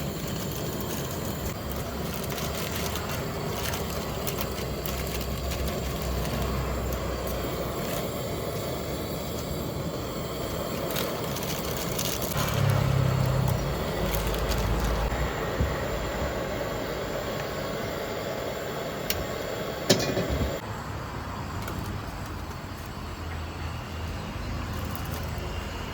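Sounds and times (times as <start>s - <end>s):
street noise: 0.0s - 25.9s
vehicle engine passing: 12.3s - 15.6s.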